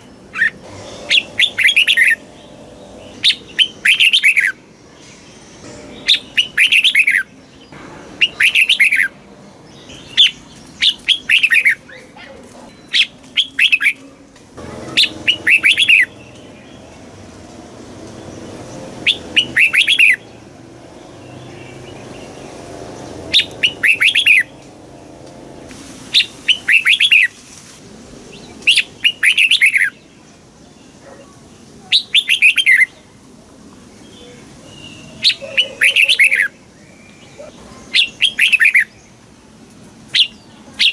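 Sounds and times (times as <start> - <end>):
bird singing chirpy phrases: 0.0 - 27.3, 34.0 - 39.2.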